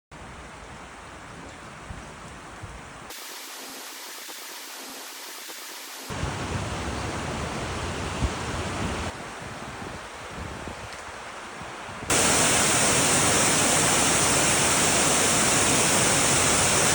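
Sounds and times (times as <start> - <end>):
waterfall rushing: 3.1 - 9.2, 12.1 - 16.9.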